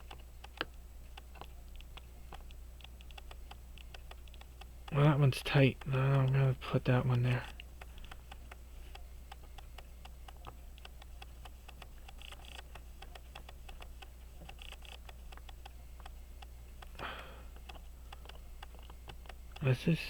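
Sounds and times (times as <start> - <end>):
clockwork ticking: 0.0 - 20.0
low steady hum: 0.0 - 20.0.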